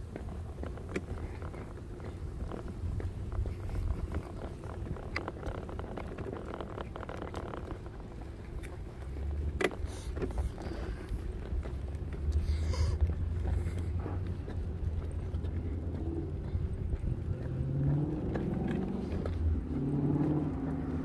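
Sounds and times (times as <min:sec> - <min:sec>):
wind rumbling on microphone: 0:00.0 - 0:09.4.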